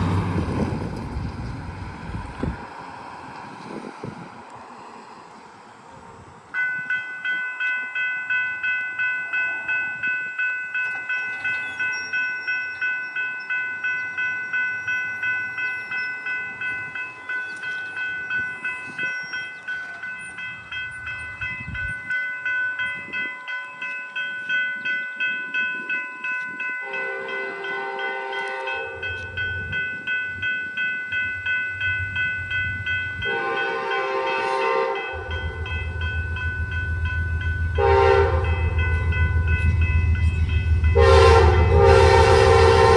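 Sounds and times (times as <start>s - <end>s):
railroad crossing bell ringing: 0.0s - 2.3s, 6.4s - 42.9s
locomotive engine rumble: 0.0s - 6.5s, 28.6s - 42.9s
train horn blasts: 26.8s - 29.4s, 33.0s - 42.9s.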